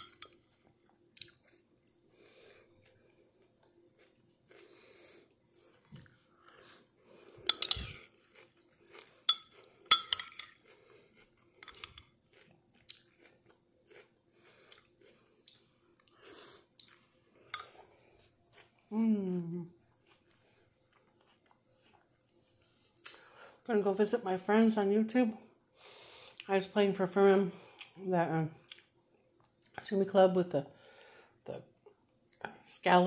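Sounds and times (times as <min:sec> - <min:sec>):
person chewing noodle soup: 0:00.7 - 0:18.9, 0:19.5 - 0:22.4.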